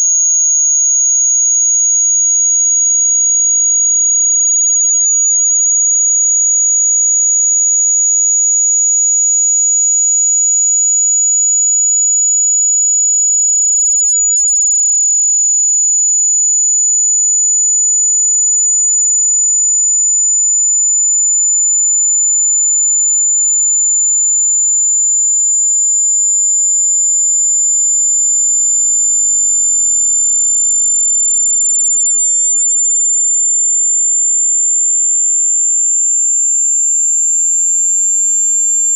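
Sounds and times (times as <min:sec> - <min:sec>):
rising high-pitched sine tone: 0:00.0 - 0:38.9.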